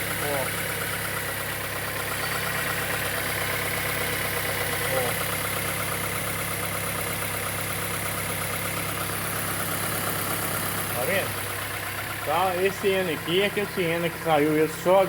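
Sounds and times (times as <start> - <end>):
engine idling with mechanical ticking: 0.0 - 15.0.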